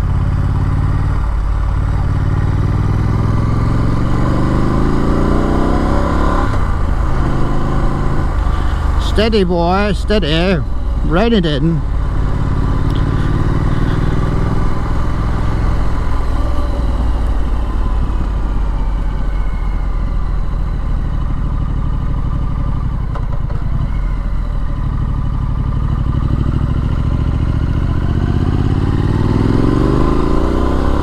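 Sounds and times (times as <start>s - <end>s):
motorcycle engine running at low revs: 0.0s - 31.0s.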